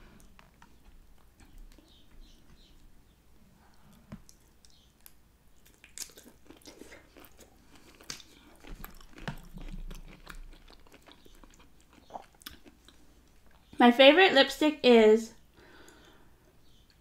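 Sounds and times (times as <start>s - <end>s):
person chewing shrimp: 0.1s - 2.9s, 3.7s - 13.7s.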